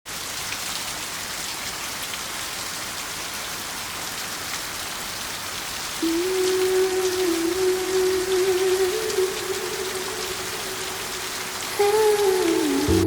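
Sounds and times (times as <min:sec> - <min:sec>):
steady rain: 0:00.1 - 0:13.0
held low musical note: 0:06.0 - 0:13.0.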